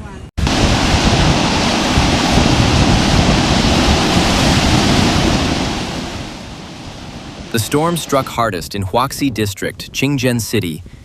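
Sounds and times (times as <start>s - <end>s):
heavy hail pounding: 0.4s - 8.3s.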